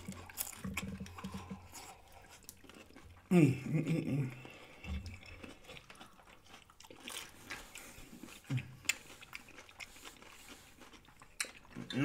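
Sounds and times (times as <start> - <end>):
people chewing food: 0.0 - 12.0.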